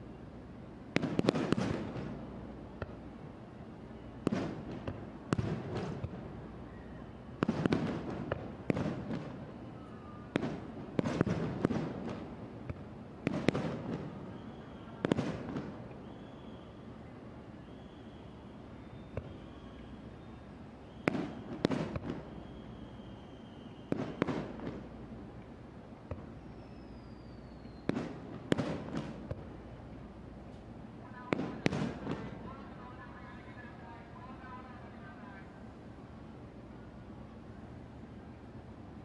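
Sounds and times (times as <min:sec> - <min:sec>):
fireworks bursting: 0:00.9 - 0:03.2, 0:04.1 - 0:06.5, 0:07.2 - 0:16.6, 0:17.7 - 0:25.4, 0:26.0 - 0:29.8, 0:30.5 - 0:33.7.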